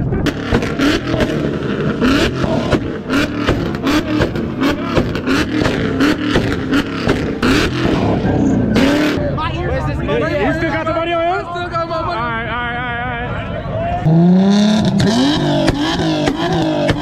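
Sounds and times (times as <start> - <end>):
exhaust pops and crackles: 0.0 - 9.3, 14.7 - 17.0
car engine revving: 0.0 - 17.0.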